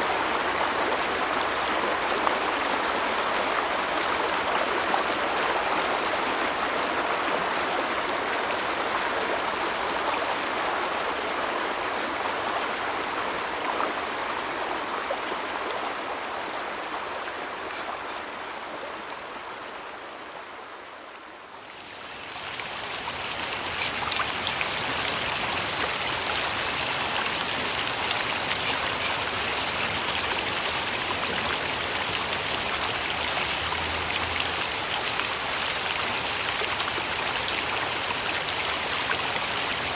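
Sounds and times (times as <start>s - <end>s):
stream water flowing: 0.0s - 39.9s
bright running water: 21.8s - 39.9s
faint water drips: 22.0s - 39.9s.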